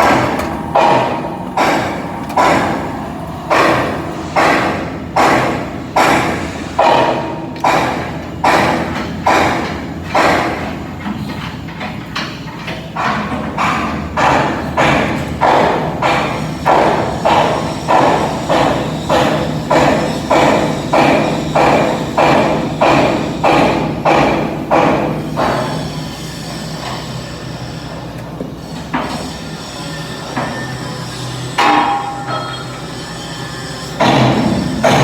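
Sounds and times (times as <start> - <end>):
hammer striking metal: 0.0 - 10.7, 31.6 - 32.9, 34.0 - 35.0
steady machine hum: 0.0 - 11.0.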